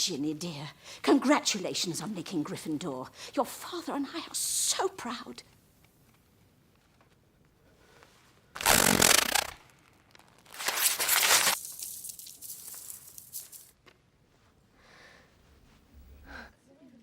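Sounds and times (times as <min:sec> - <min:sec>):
paper rustling and crackling: 0:08.6 - 0:13.7
paper tearing: 0:08.6 - 0:13.7.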